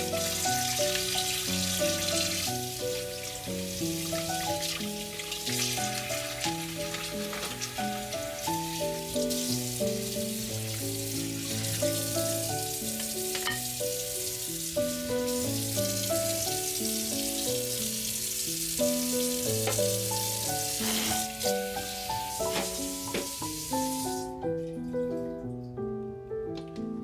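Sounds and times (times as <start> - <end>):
food sizzling: 0.0 - 24.4
gentle background music: 0.0 - 27.0.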